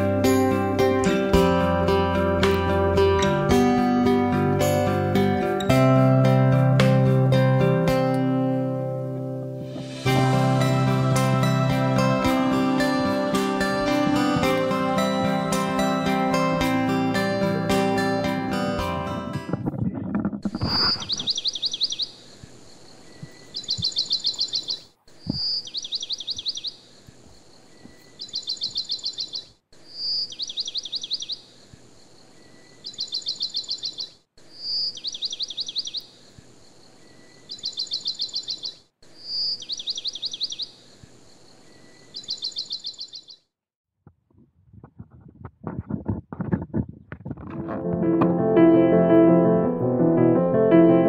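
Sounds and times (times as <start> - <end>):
high bird chips: 20.6 - 22.1
songbird call: 20.6 - 43.4.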